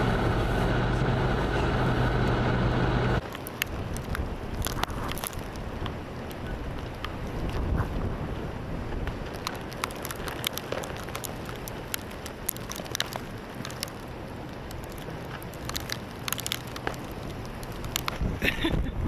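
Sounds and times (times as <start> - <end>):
snow striking microphone: 0.0 - 3.2
blizzard wind: 0.0 - 19.0.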